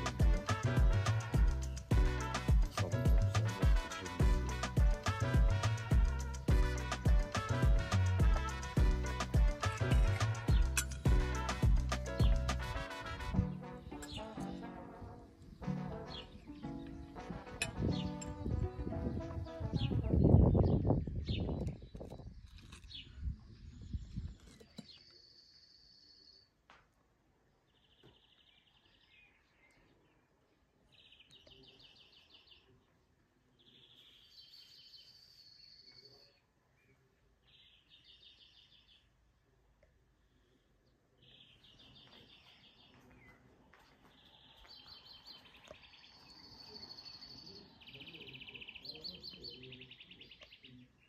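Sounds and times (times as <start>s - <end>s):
songbirds singing faintly: 13.5s - 51.0s.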